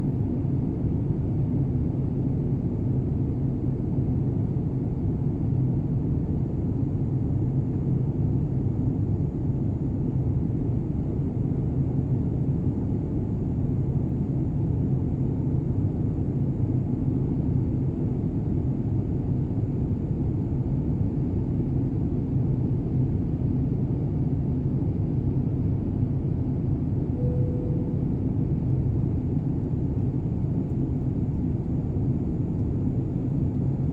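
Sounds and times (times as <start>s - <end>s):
jet airliner cabin rumble: 0.0s - 33.9s.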